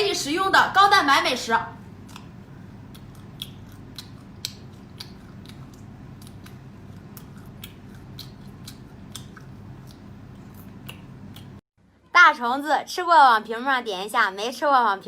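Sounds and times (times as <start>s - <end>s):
crunching and chewing crispy food: 2.0s - 11.6s.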